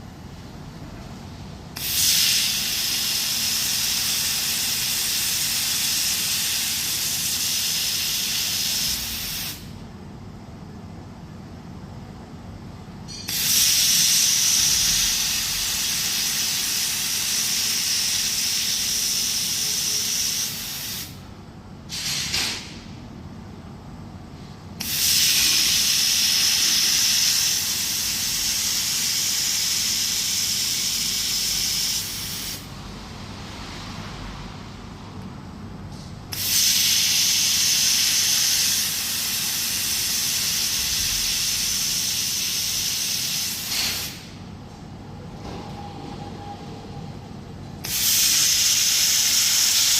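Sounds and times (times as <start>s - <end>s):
laser welding machine hissing: 1.7s - 9.8s, 13.1s - 21.3s, 21.9s - 22.9s, 24.8s - 32.7s, 36.3s - 44.4s, 47.8s - 49.9s.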